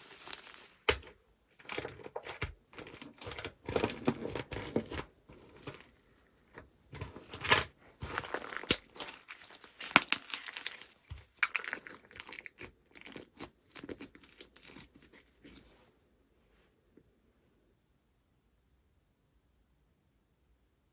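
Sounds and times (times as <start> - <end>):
slime crackling and popping: 0.0 - 15.6.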